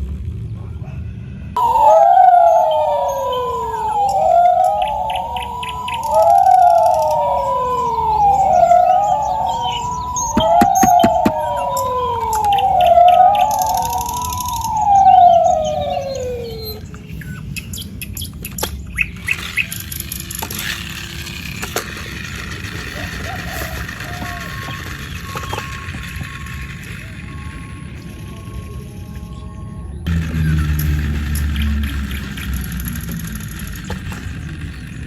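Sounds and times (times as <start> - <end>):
toy siren wailing: 1.6 - 16.9, 20.5 - 27.7.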